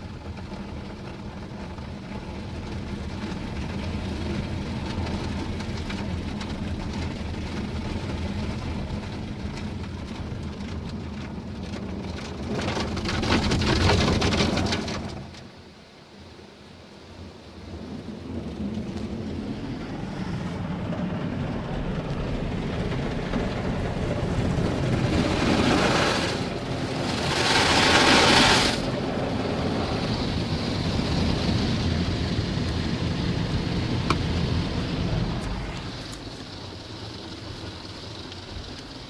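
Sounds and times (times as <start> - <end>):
car wash machinery rumble: 0.0 - 39.0
water spraying on car body: 18.1 - 39.0.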